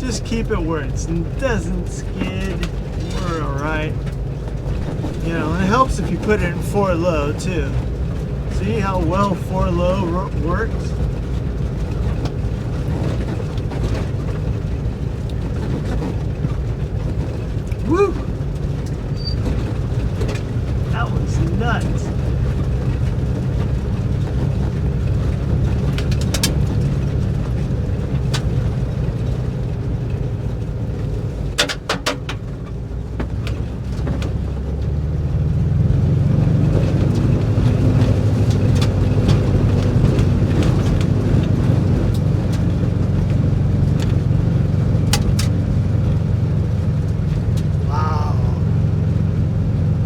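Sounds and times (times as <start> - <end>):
engine drone: 0.0 - 24.7, 47.0 - 50.0.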